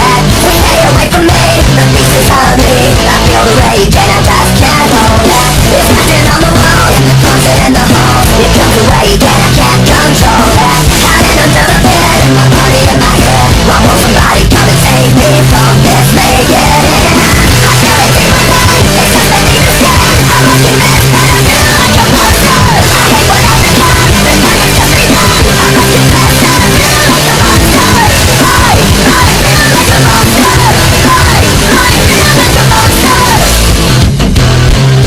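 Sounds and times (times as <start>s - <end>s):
screamed vocals: 0.0s - 33.7s
distorted guitars: 0.0s - 35.0s.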